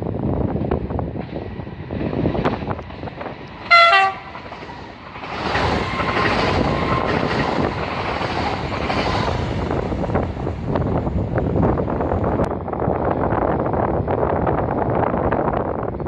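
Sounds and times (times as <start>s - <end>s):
train running noise: 0.0s - 16.0s
train horn blast: 3.7s - 4.4s.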